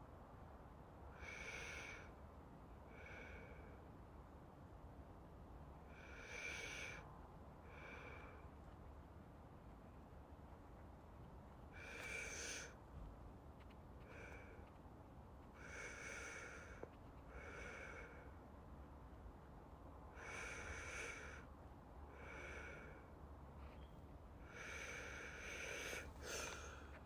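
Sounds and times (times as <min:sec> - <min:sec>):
faint low hum: 0:01.8 - 0:27.0
deep human breathing: 0:15.5 - 0:18.4, 0:22.1 - 0:23.8, 0:24.4 - 0:27.0.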